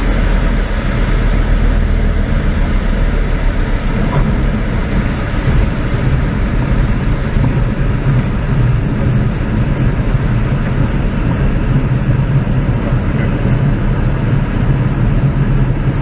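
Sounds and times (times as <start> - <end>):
light aircraft engine drone: 0.0 - 16.0.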